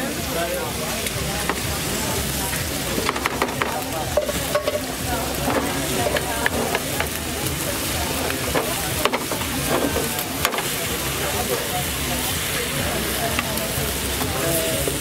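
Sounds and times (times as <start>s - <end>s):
noodles sizzling in a pan: 0.0s - 15.0s.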